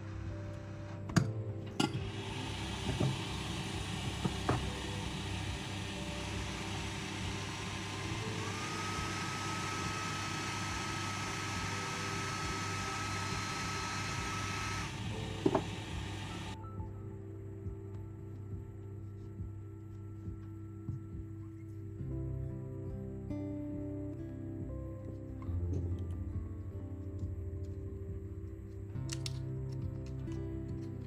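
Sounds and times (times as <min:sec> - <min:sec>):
air blower hissing: 0:00.0 - 0:16.6
faint whine: 0:00.0 - 0:29.1.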